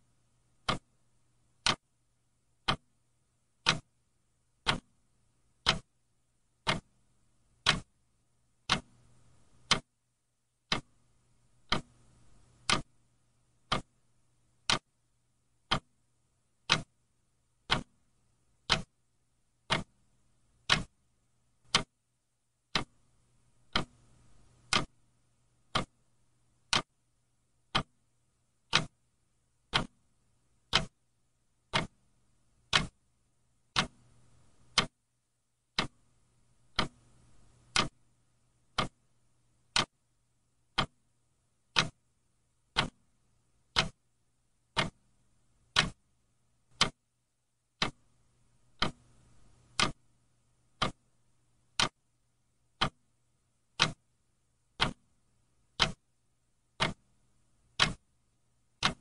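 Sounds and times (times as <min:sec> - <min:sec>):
faint low hum: 0:00.0 - 0:59.0
clock ticking: 0:00.5 - 0:01.9, 0:02.6 - 0:03.9, 0:04.5 - 0:05.9, 0:06.6 - 0:07.0, 0:07.6 - 0:07.9, 0:08.6 - 0:09.9, 0:10.6 - 0:13.0, 0:13.6 - 0:14.0, 0:14.6 - 0:14.9, 0:15.6 - 0:16.0, 0:16.6 - 0:17.0, 0:17.6 - 0:19.0, 0:19.6 - 0:20.0, 0:20.6 - 0:21.0, 0:21.6 - 0:22.0, 0:22.7 - 0:25.0, 0:25.6 - 0:27.0, 0:27.6 - 0:29.0, 0:29.6 - 0:31.0, 0:31.6 - 0:32.0, 0:32.6 - 0:33.0, 0:33.6 - 0:35.0, 0:35.7 - 0:38.0, 0:38.6 - 0:39.1, 0:39.7 - 0:40.0, 0:40.7 - 0:41.1, 0:41.7 - 0:42.0, 0:42.7 - 0:44.0, 0:44.7 - 0:46.1, 0:46.7 - 0:47.0, 0:47.8 - 0:50.1, 0:50.7 - 0:51.1, 0:51.7 - 0:52.1, 0:52.8 - 0:53.1, 0:53.7 - 0:54.1, 0:54.8 - 0:55.2, 0:55.8 - 0:56.1, 0:56.8 - 0:58.1, 0:58.8 - 0:59.0.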